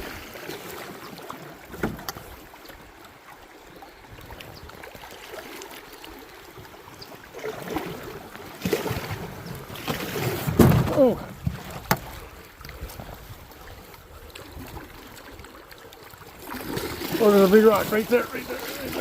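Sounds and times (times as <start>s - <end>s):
paddles splashing: 0.0s - 19.0s
rushing river water: 0.0s - 19.0s
sharp knock on canoe: 10.4s - 12.2s.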